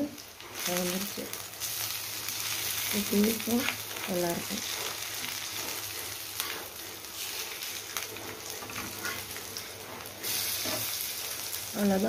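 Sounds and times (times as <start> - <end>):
oil sizzling in a pan: 0.0 - 12.0.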